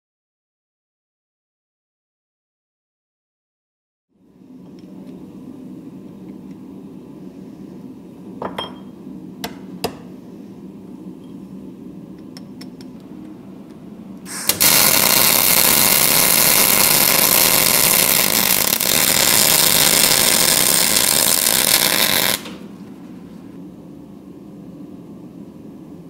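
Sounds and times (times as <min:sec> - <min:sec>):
steady low hum: 0:04.1 - 0:26.0
power grinder grinding steel: 0:14.5 - 0:22.6.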